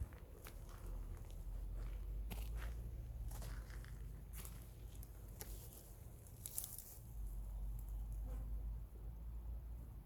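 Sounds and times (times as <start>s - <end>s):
soft crackles and rustles: 0.0s - 8.1s.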